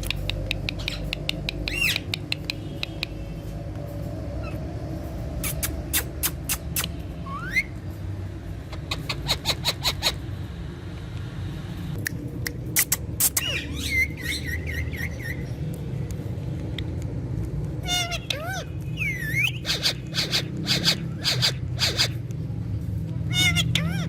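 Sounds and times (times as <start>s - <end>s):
parrot clicking: 0.0s - 3.2s
parrot whistling: 5.4s - 7.8s, 17.9s - 22.2s.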